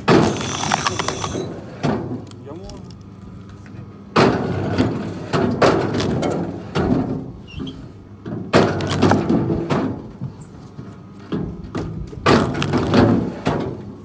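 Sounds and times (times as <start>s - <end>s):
wood cracking and splintering: 0.0s - 1.6s, 12.2s - 13.3s.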